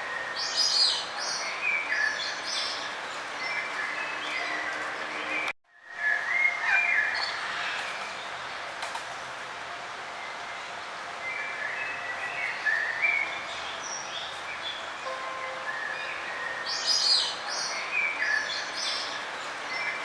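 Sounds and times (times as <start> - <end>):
songbird chirping in trills: 11.2 - 20.0.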